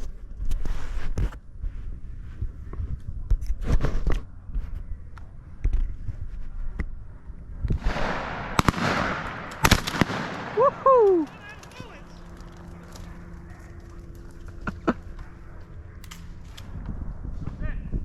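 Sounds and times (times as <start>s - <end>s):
shotgun shots: 7.8s - 13.6s
rustling: 9.4s - 17.6s.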